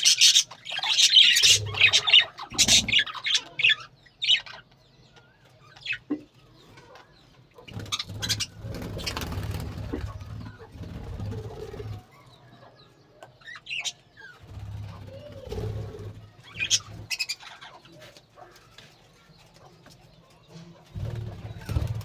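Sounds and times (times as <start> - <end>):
bird chirps: 7.6 - 18.7
bird cooing: 14.5 - 17.0.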